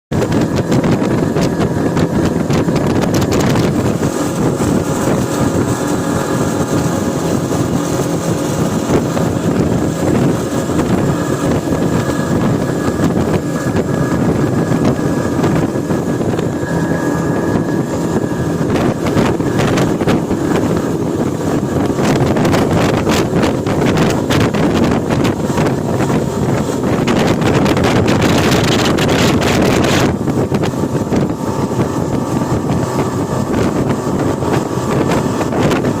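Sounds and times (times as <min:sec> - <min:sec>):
speedboat engine running: 0:00.1 - 0:36.0
wind buffeting microphone: 0:00.1 - 0:36.0.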